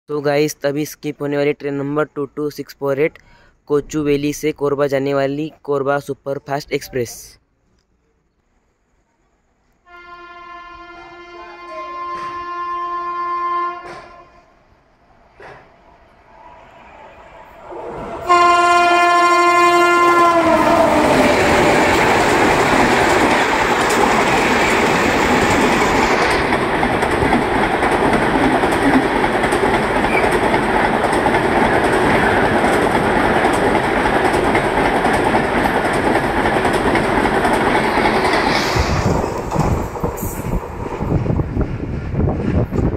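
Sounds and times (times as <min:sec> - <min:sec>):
train wheel and rail noise: 0:08.4 - 0:13.1, 0:13.7 - 0:42.9
train horn: 0:09.8 - 0:14.6, 0:18.0 - 0:21.5.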